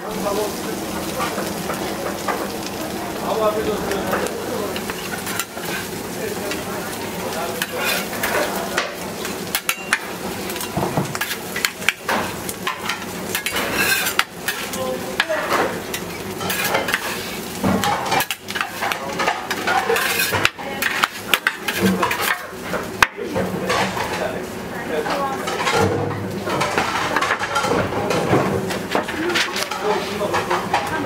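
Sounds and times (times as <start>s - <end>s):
food sizzling in a metal pan: 0.0s - 31.0s
metal utensils scraping a pan: 4.8s - 6.0s, 7.5s - 24.3s, 25.1s - 31.0s.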